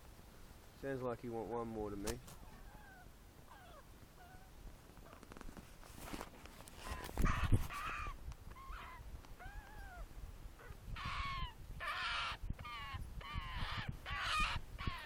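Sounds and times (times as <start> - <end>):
young bird begging calls: 2.5 - 4.5, 6.8 - 15.0.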